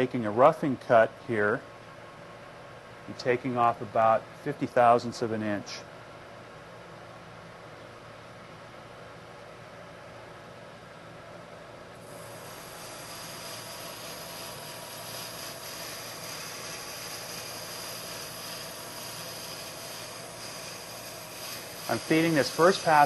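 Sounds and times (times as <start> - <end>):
hiss of lathe tool cutting: 12.0 - 23.0
lathe running: 12.0 - 23.0.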